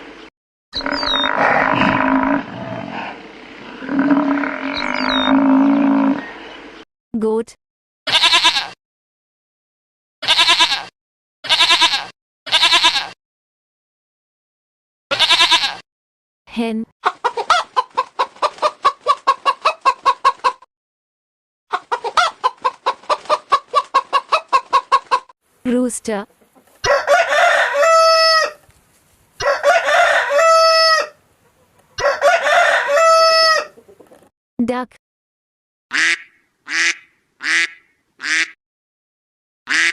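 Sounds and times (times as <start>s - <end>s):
goat bleating: 8.1s - 8.8s, 10.2s - 10.9s, 11.5s - 13.2s, 15.1s - 15.8s
rooster crowing: 26.8s - 28.6s, 29.4s - 31.2s, 32.0s - 33.8s.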